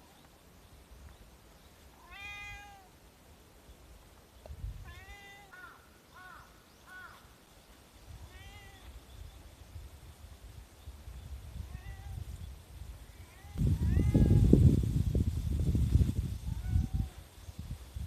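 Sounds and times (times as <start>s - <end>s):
cat meowing: 2.0s - 2.9s, 4.9s - 5.7s, 8.3s - 8.9s, 11.6s - 12.2s, 13.2s - 14.6s, 16.5s - 17.2s.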